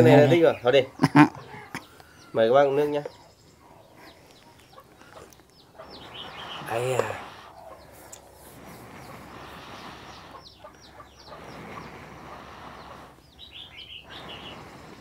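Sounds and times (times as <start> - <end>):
background hiss: 0.0 - 15.0
birds chirping: 0.0 - 15.0.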